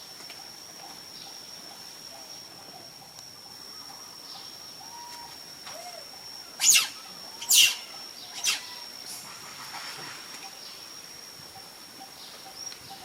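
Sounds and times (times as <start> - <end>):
monkey giving shrill calls: 6.6 - 9.4.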